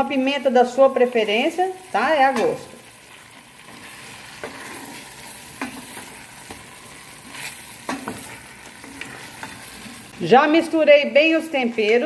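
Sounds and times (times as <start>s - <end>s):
chicken sizzling in a pot: 0.0s - 12.0s
wooden spoon knocking and scraping pot: 7.3s - 9.7s.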